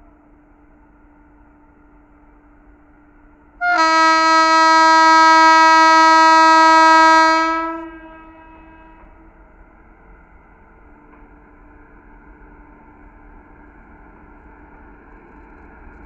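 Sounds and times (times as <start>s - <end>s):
locomotive air horn blast: 3.6s - 9.2s.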